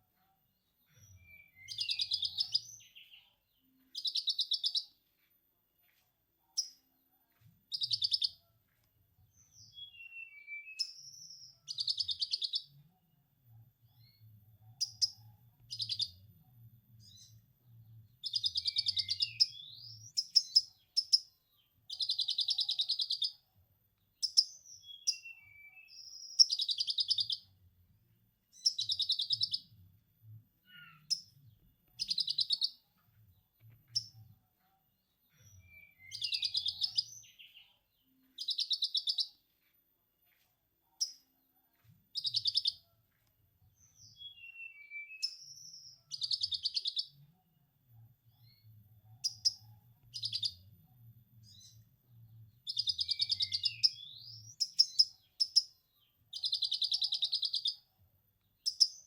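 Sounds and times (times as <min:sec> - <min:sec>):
sunbird chattering song: 0:01.1 - 0:03.2, 0:04.0 - 0:04.9, 0:07.7 - 0:08.4, 0:28.6 - 0:29.7, 0:32.0 - 0:32.8, 0:35.7 - 0:37.6, 0:42.2 - 0:42.8, 0:52.7 - 0:55.7, 0:56.3 - 0:57.8, 0:58.6 - 0:59.0.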